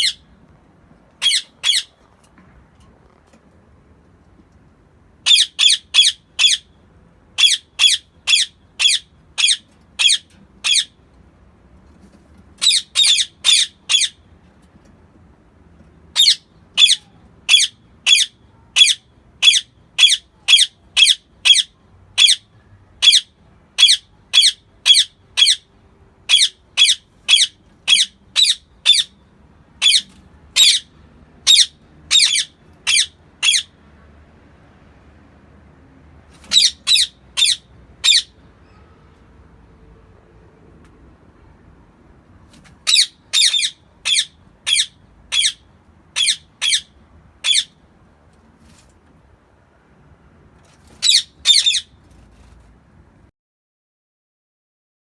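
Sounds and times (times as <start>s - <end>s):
parakeet screeching calls: 0.0s - 0.2s, 1.2s - 2.0s, 5.3s - 6.7s, 7.4s - 11.0s, 12.6s - 14.2s, 16.2s - 22.4s, 23.0s - 29.2s, 29.8s - 33.8s, 36.4s - 38.8s, 42.8s - 47.8s, 51.0s - 52.0s.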